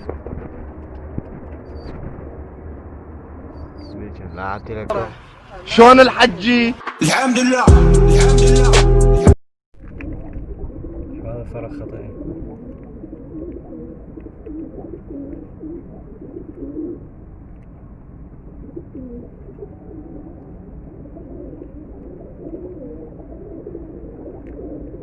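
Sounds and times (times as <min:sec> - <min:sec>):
pigeons cooing: 0:10.0 - 0:17.3, 0:18.4 - 0:25.0.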